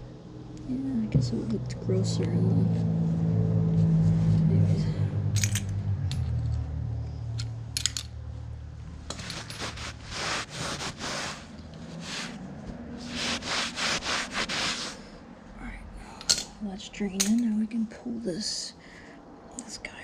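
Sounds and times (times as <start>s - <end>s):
short rubbing strokes: 9.0s - 15.2s.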